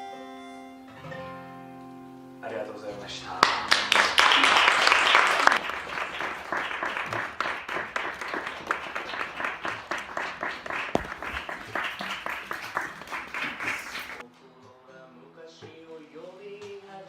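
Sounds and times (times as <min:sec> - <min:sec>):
audience clapping: 0:03.3 - 0:14.2.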